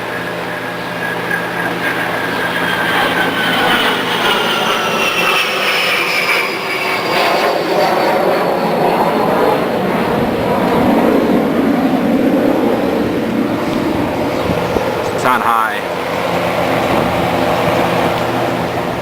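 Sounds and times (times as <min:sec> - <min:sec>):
box fan rushing air: 0:00.0 - 0:19.0
faint fan whine: 0:08.5 - 0:19.0.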